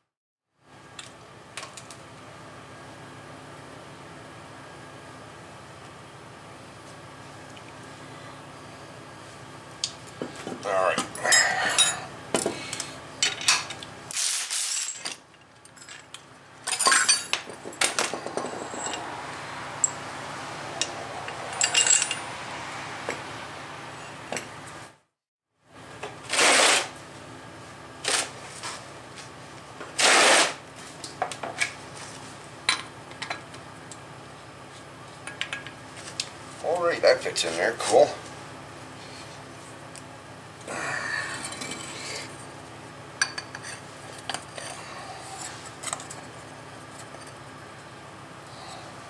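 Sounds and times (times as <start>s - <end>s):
metal tools clinking on concrete: 10.9s - 12.1s, 13.2s - 13.8s, 14.5s - 19.1s, 20.8s - 22.3s, 41.4s - 42.2s.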